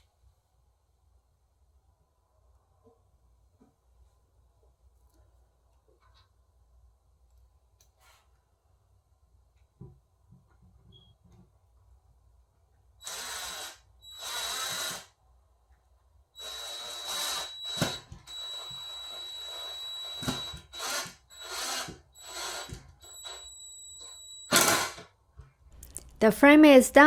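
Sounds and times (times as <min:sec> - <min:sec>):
cordless drill driving screws: 0:13.0 - 0:15.1, 0:16.4 - 0:25.1.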